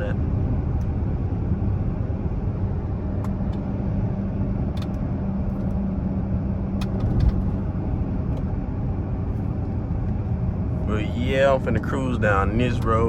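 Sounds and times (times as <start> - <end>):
car engine drone: 0.0 - 13.0
road noise: 0.0 - 13.0.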